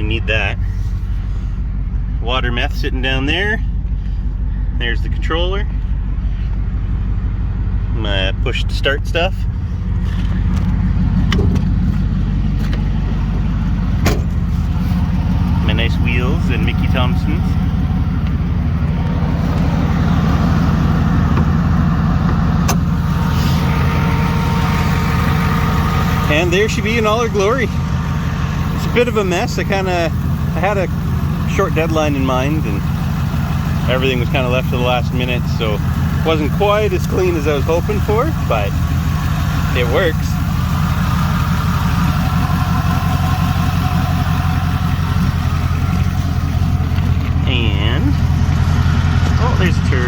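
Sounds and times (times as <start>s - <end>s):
car engine idling: 0.0s - 50.0s.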